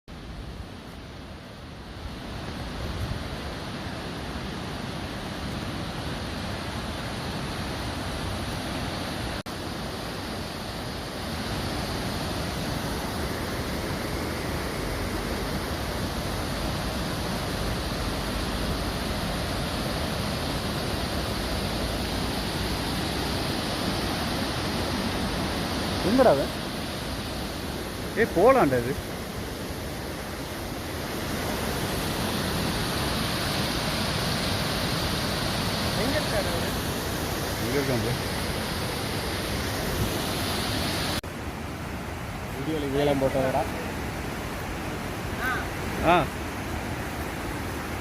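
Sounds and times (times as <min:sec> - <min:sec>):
waterfall roaring: 0:00.2 - 0:48.0.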